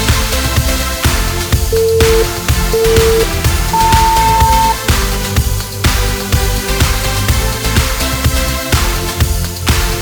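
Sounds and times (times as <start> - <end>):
electronic dance music: 1.7 - 4.8
interval timer beeps: 1.7 - 4.8.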